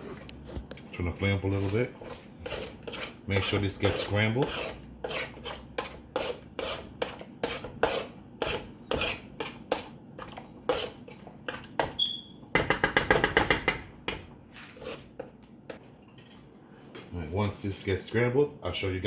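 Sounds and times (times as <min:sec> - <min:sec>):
utensil scraping a frying pan: 0:00.0 - 0:11.8, 0:14.5 - 0:15.3.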